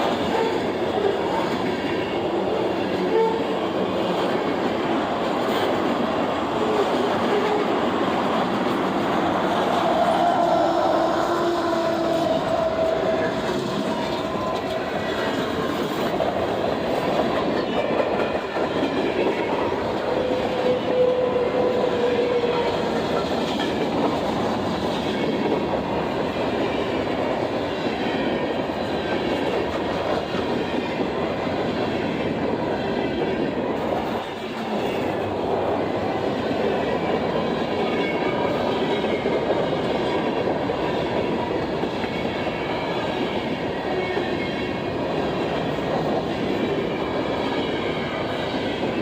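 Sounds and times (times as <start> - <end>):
train wheels clacking: 0.0 - 31.2.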